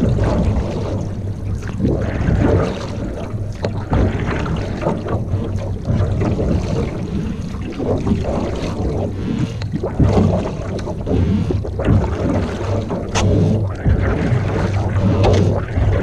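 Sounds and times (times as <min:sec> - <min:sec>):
water splashes: 0:00.0 - 0:16.0.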